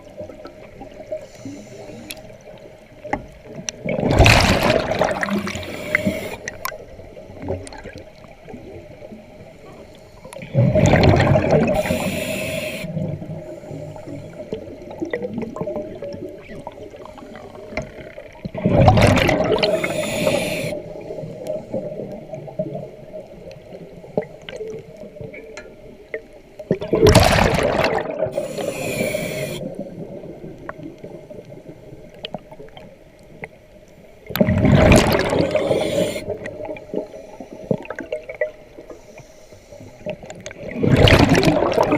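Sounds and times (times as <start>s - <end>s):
diver breathing through regulator: 1.2s - 2.3s, 5.4s - 6.6s, 11.6s - 14.6s, 19.5s - 22.0s, 28.3s - 29.9s, 35.3s - 37.7s
bubbles gushing: 3.7s - 6.7s, 10.4s - 12.0s, 18.4s - 20.4s, 26.7s - 28.7s, 34.3s - 37.1s, 40.5s - 41.9s.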